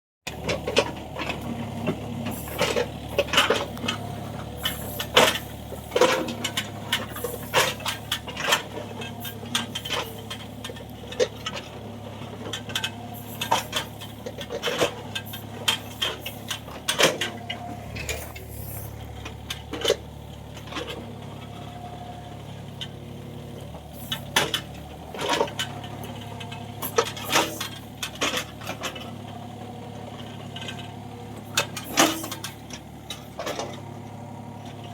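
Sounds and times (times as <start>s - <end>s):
excavator engine hum: 0.2s - 34.9s
metallic track clanks: 0.3s - 21.9s, 23.6s - 29.2s, 30.2s - 33.9s.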